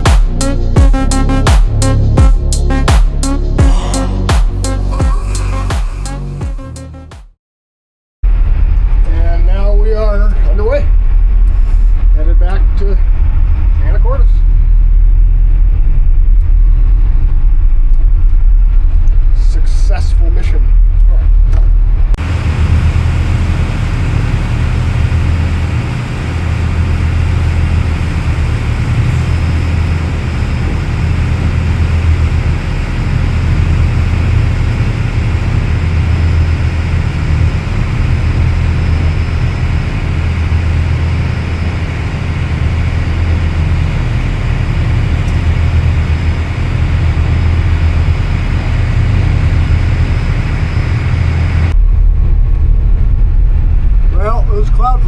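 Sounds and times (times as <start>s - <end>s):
diesel engines droning: 22.0s - 55.0s.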